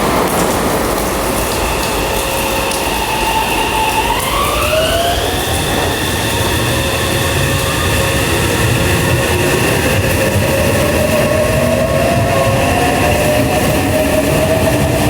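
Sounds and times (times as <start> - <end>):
train rumble: 0.0 - 15.0
electric train motor whine: 2.9 - 15.0.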